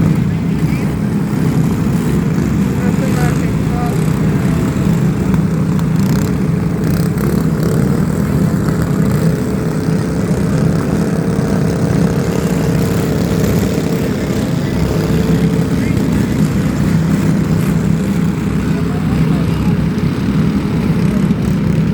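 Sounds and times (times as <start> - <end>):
low vehicle rumble: 0.0 - 21.9.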